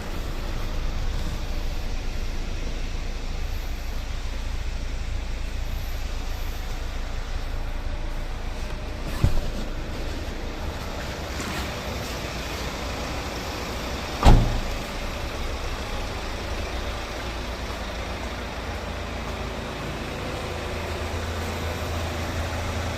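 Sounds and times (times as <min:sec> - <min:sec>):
diesel engine idling: 0:00.0 - 0:22.9
sharp thump: 0:14.2 - 0:14.8.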